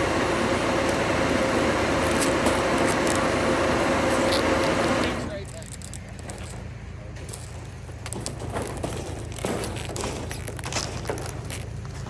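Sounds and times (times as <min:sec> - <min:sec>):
mid-pitched machine whine: 0:00.0 - 0:05.4
truck engine drone: 0:00.0 - 0:12.0.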